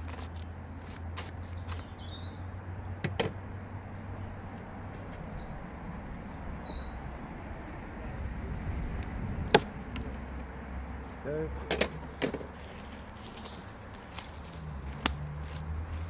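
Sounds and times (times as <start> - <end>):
small birds chirping: 0.0 - 7.8
wind rumble on microphone: 3.8 - 10.3.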